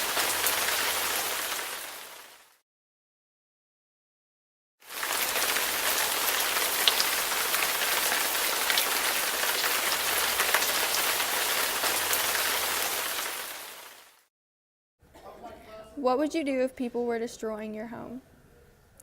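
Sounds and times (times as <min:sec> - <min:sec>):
rain falling: 0:00.0 - 0:02.6, 0:04.9 - 0:14.3.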